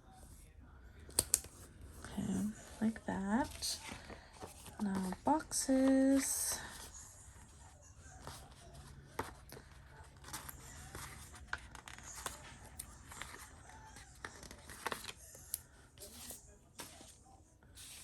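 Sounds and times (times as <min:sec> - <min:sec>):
stickers peeling and rustling: 0:08.1 - 0:17.2.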